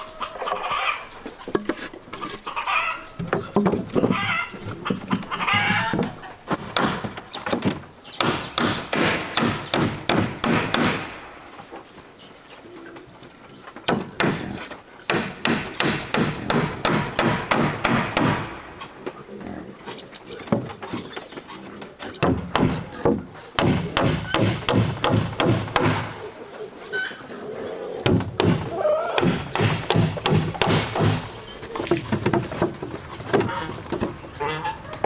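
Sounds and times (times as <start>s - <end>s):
hand tool striking wood: 6.5s - 11.1s, 15.1s - 18.5s, 22.2s - 26.1s, 29.2s - 31.3s.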